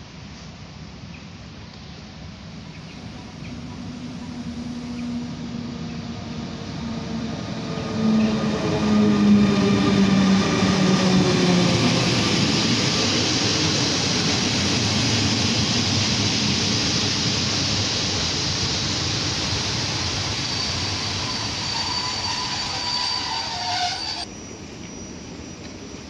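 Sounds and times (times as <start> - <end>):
train coaches rolling past: 0.0 - 26.0
high wheel squeal: 18.4 - 24.3.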